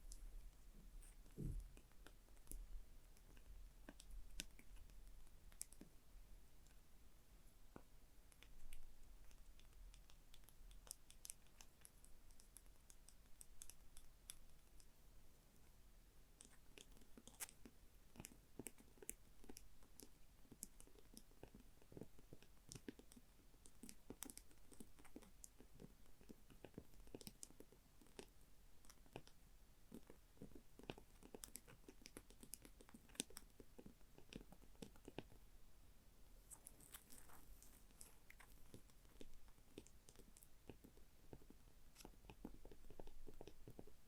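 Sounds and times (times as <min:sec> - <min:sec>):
soft tapping and scratching: 0:00.0 - 0:06.0, 0:16.4 - 0:35.5, 0:36.4 - 0:44.0.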